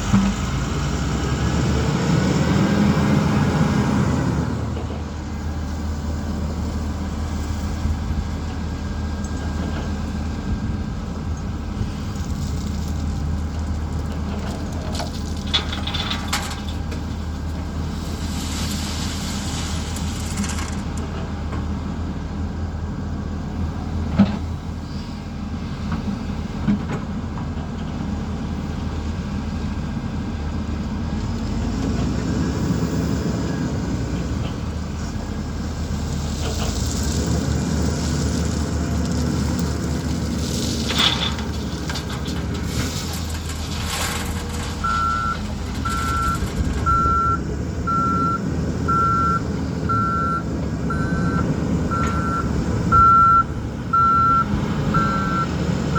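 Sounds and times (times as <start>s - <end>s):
diesel engine droning: 0.0s - 55.9s
hiss: 17.9s - 20.4s
metal clanks: 40.5s - 47.1s.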